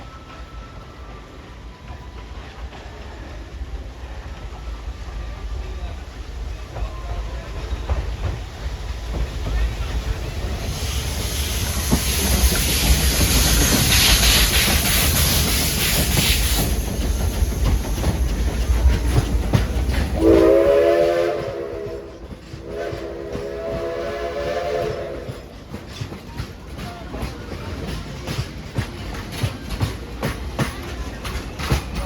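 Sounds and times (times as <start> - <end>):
loud steam hiss: 3.1 - 25.9
steam whistle blasts: 20.2 - 25.5.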